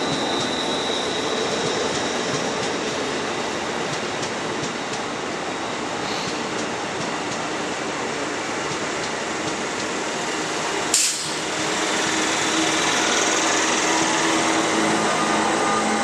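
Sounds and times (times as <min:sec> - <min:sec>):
train rushing past: 0:07.9 - 0:16.0.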